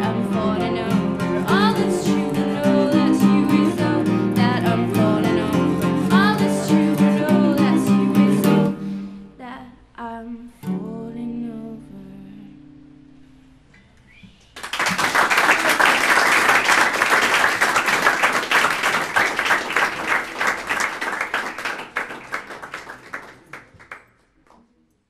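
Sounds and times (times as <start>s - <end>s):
acoustic guitar chord: 0.0s - 9.6s
audience applauding: 14.6s - 24.6s.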